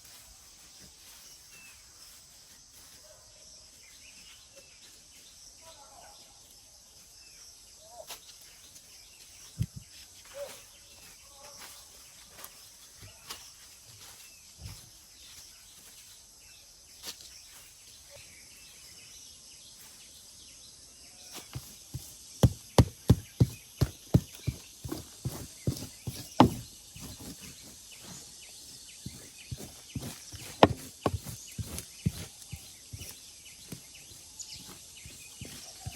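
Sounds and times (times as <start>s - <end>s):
garden tool knocking ground: 21.4s - 35.9s.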